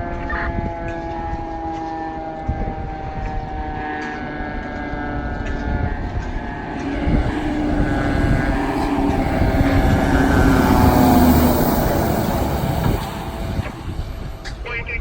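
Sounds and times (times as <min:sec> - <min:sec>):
fire engine driving past: 0:00.0 - 0:15.0
steady pitched tone: 0:04.8 - 0:15.0.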